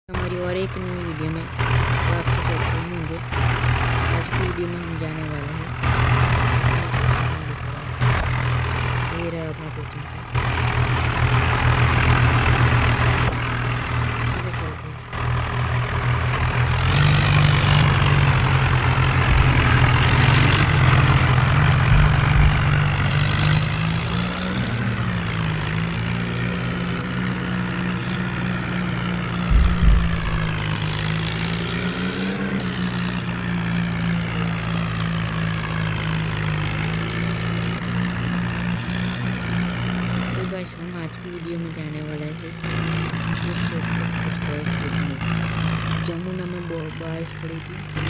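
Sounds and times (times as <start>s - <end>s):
vehicle engine running: 0.0s - 48.0s.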